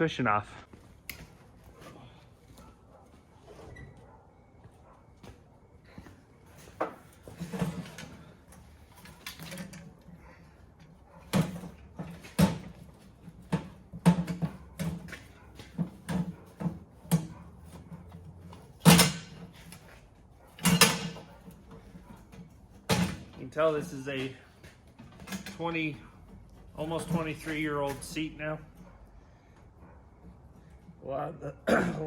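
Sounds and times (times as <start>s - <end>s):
metal clanks and knocks: 6.6s - 10.2s, 10.8s - 19.9s, 20.5s - 23.8s, 24.9s - 28.1s.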